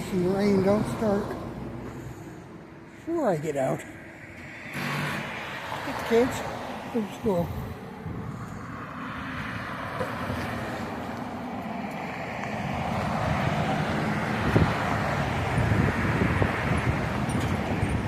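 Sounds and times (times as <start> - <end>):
vehicle engine and tyre noise: 0.0 - 18.0
wind buffeting microphone: 7.2 - 11.3, 12.4 - 18.0.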